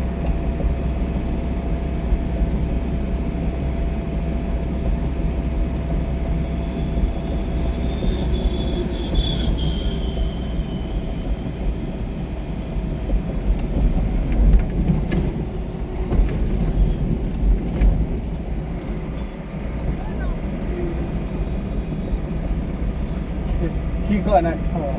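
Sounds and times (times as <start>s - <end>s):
vehicle low rumble: 0.0s - 24.9s
high squeal: 6.4s - 12.4s.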